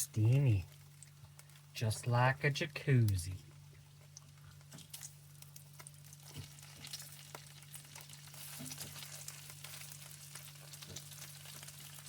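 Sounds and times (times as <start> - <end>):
steady low hum: 0.0 - 6.3
food sizzling on a griddle: 4.9 - 12.0.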